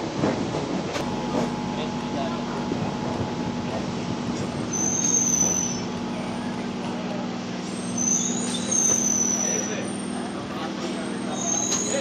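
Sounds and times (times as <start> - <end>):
train rolling with steady hum: 0.0 - 12.0
high wheel squeal: 4.4 - 12.0.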